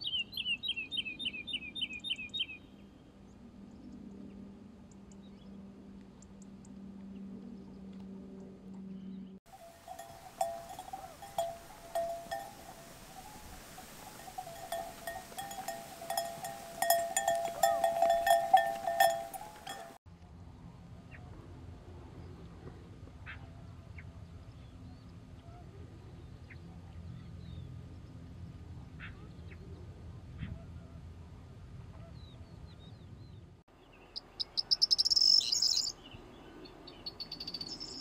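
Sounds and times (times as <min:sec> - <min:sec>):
bird calling: 0:09.5 - 0:20.0.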